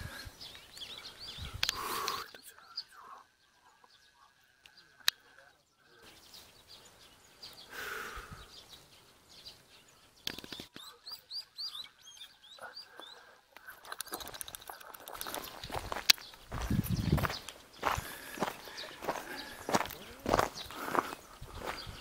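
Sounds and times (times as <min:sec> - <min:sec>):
small songbirds chirping: 0:00.0 - 0:22.0.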